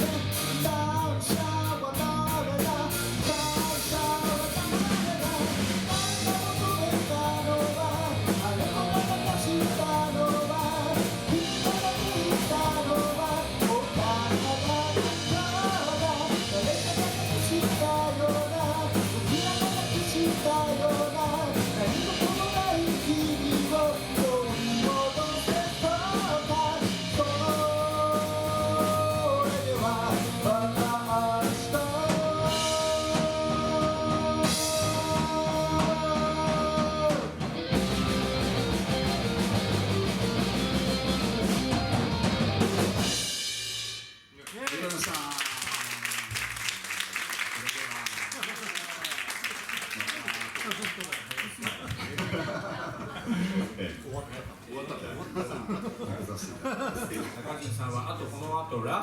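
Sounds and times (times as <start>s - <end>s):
person singing: 0.0s - 37.4s
live rock band playing: 0.0s - 45.0s.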